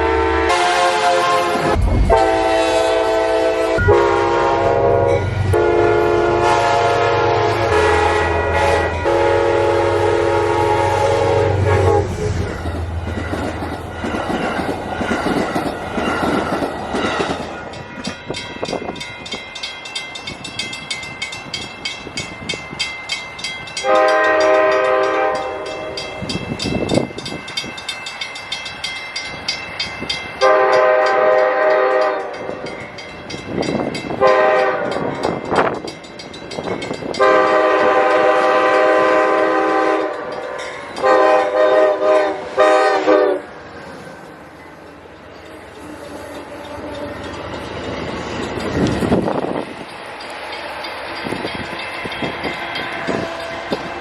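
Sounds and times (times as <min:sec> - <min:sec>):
train air horn blasts: 0:00.0 - 0:12.6, 0:23.8 - 0:26.1, 0:30.4 - 0:32.6, 0:34.1 - 0:35.2, 0:37.1 - 0:43.6
train wheels clacking on rails: 0:05.2 - 0:54.0.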